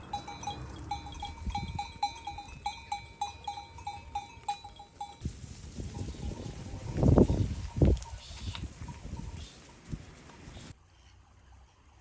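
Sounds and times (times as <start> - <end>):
small bell clinking: 0.0 - 5.2.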